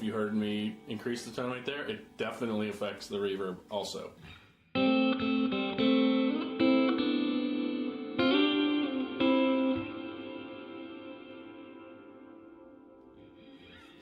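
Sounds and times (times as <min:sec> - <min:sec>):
electric guitar chords with reverb: 0:04.7 - 0:14.0.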